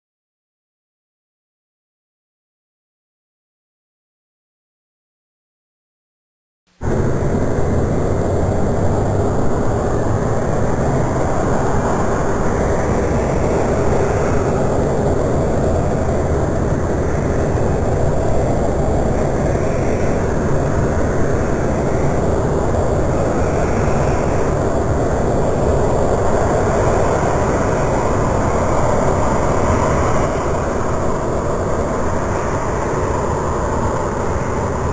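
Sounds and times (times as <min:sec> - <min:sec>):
jet engines running: 0:06.8 - 0:34.9.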